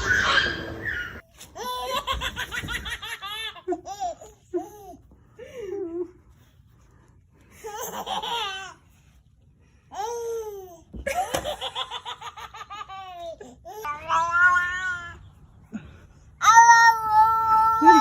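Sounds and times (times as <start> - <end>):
baby squealing: 0.0 - 1.2.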